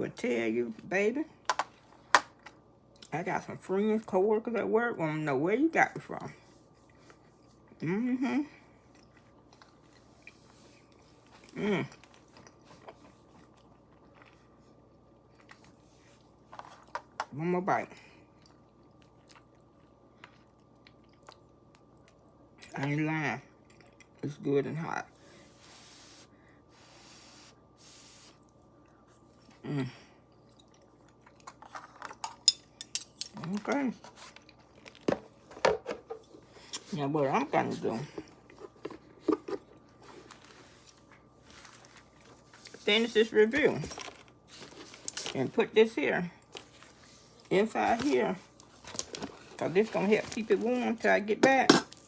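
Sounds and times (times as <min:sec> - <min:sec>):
person chewing food: 0:08.6 - 0:17.2, 0:18.2 - 0:22.6, 0:23.6 - 0:24.2, 0:30.2 - 0:32.0.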